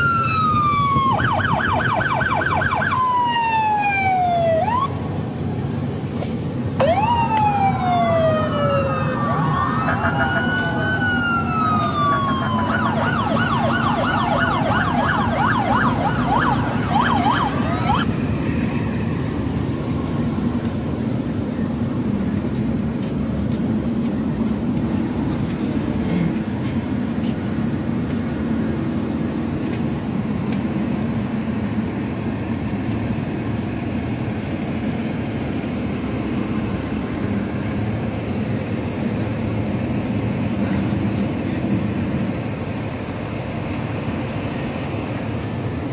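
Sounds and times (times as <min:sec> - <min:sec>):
emergency siren yelping: 0:00.0 - 0:05.1, 0:06.8 - 0:18.4
low engine rumble: 0:00.0 - 0:45.9.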